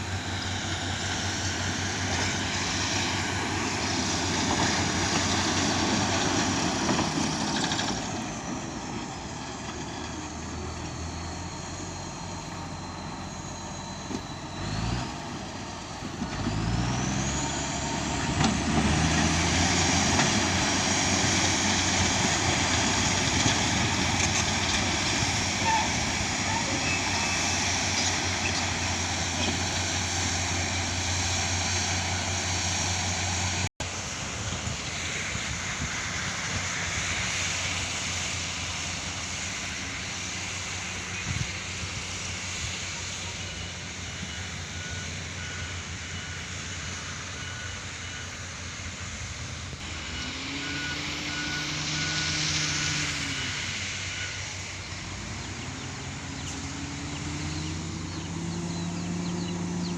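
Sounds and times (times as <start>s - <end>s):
diesel engine running: 0.0s - 59.9s
repeating reversing alarm beep: 43.5s - 48.8s.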